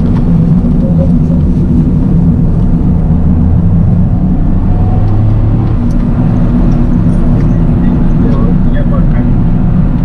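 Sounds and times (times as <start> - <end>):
car engine droning: 0.0 - 10.0.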